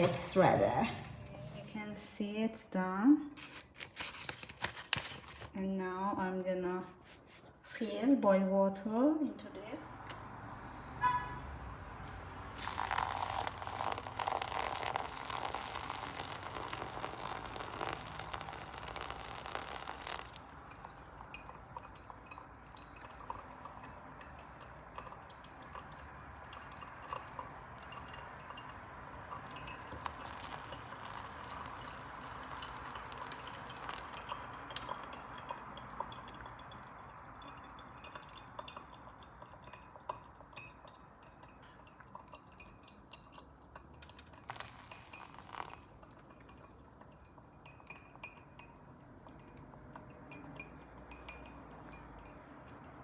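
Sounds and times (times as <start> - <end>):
water poured into coffee filter: 3.4 - 5.6, 12.6 - 53.0
water trickling and dripping: 12.5 - 53.0.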